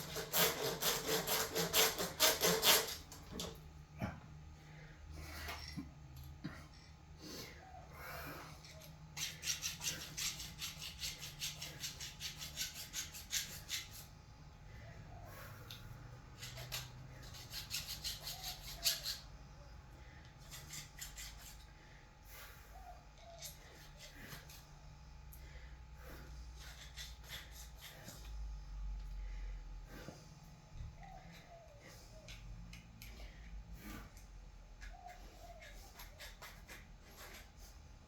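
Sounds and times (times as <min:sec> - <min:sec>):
file rasping on metal: 0:00.0 - 0:03.1, 0:08.7 - 0:14.1, 0:16.4 - 0:19.3, 0:20.4 - 0:21.7, 0:26.1 - 0:28.3.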